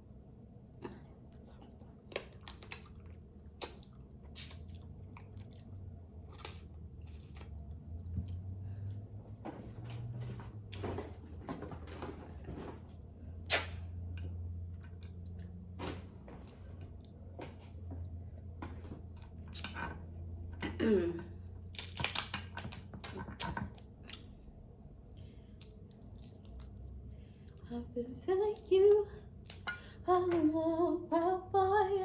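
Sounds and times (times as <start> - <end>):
person chewing: 1.3 - 9.0.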